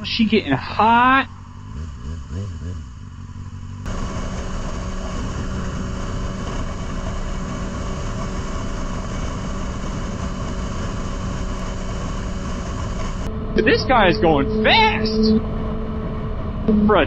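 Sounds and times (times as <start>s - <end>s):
motorcycle engine cruising: 0.0s - 17.0s.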